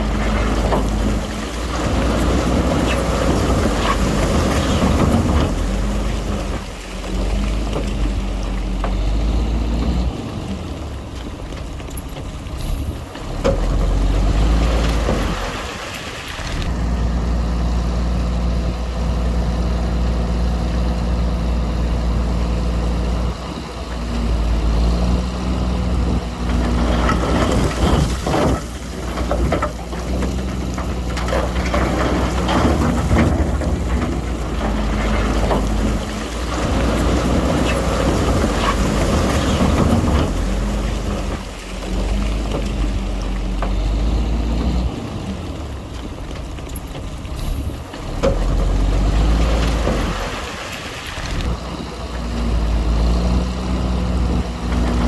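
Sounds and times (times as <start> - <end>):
rough clatter: 0.0 - 9.2, 26.1 - 52.2
diesel machinery engine rumble: 0.0 - 55.0.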